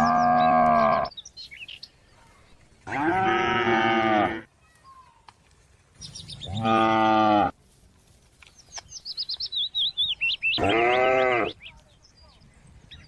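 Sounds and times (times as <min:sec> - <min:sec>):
cow mooing: 0:00.0 - 0:01.1, 0:02.9 - 0:04.4, 0:06.5 - 0:07.5, 0:10.6 - 0:11.5.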